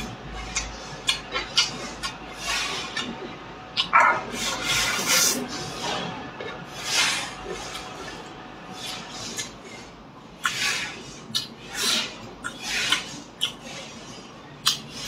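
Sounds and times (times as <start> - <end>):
person biting and chewing: 14.6 - 14.9.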